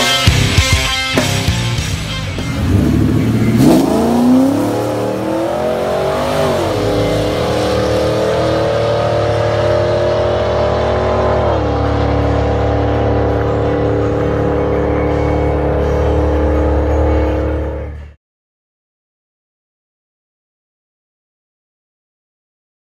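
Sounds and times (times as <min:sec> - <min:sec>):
car engine at full throttle: 0:00.0 - 0:18.2.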